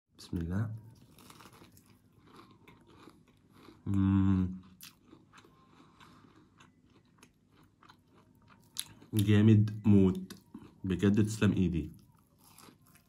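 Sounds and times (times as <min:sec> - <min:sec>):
crunchy chewing of fried chicken: 0:00.8 - 0:13.0
person humming: 0:03.9 - 0:04.6.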